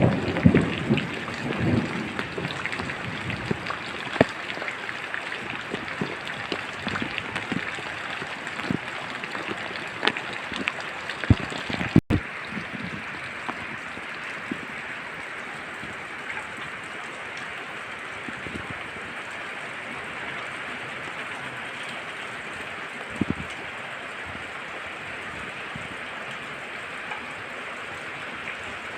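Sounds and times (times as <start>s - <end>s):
heavy drops ticking: 0.0s - 12.2s
rain falling in forest: 0.0s - 28.9s.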